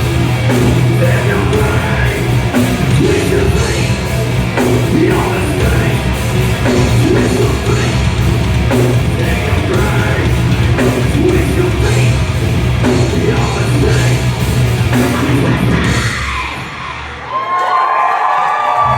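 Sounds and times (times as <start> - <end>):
heavy rock music with yelled vocals: 0.0 - 17.6.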